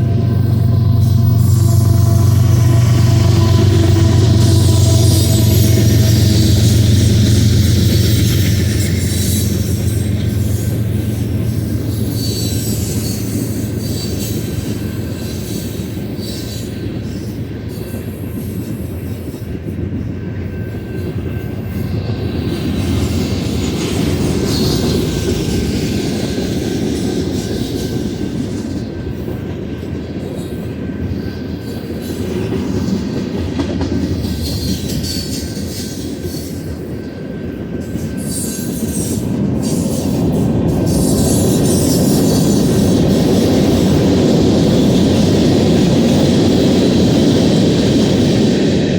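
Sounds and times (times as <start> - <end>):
wheel squeals: 0.0 - 18.7
freight train rolling past: 0.0 - 48.9.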